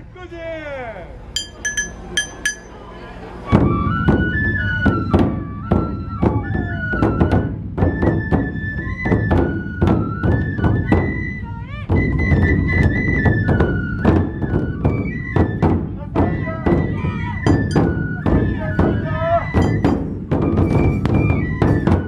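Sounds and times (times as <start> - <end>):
barrel drums beating: 1.4 - 2.8, 15.6 - 19.0, 19.6 - 22.0
metal hand cymbals: 1.4 - 2.8, 19.6 - 20.2
bamboo flute melody: 3.4 - 22.0.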